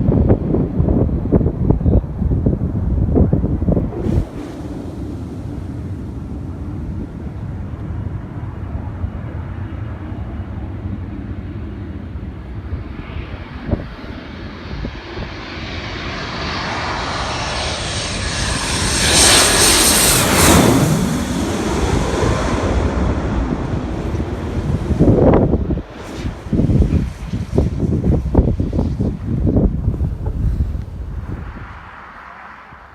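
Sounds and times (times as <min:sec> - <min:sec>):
jet passing overhead: 0:00.0 - 0:32.9
wind buffeting microphone: 0:00.0 - 0:32.9.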